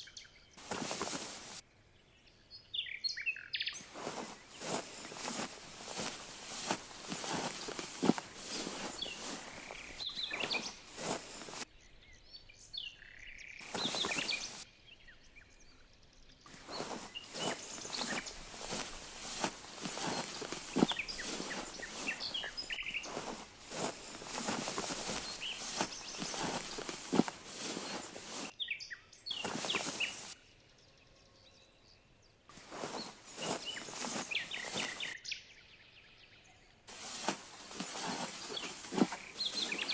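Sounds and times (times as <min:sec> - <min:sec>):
birds chirping: 0:00.0 - 0:39.9
rustling noise: 0:00.6 - 0:01.6, 0:03.8 - 0:11.7, 0:13.6 - 0:14.6, 0:16.5 - 0:28.6, 0:29.3 - 0:30.4, 0:32.5 - 0:35.2, 0:36.9 - 0:39.9.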